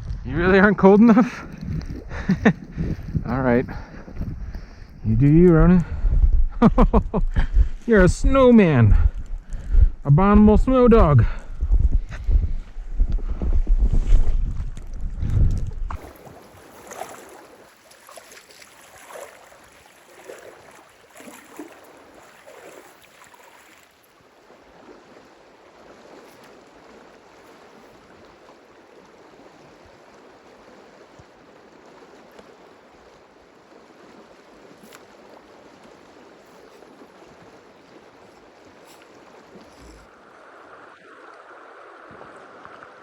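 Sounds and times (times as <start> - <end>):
wind buffeting microphone: 0.0 - 17.0
river water rushing: 16.0 - 43.0.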